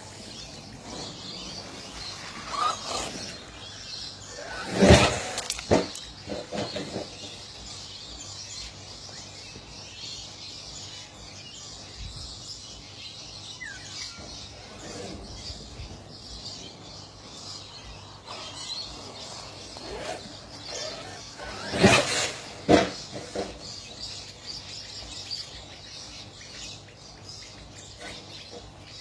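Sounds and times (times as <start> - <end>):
birds chirping faintly: 0.0 - 29.0.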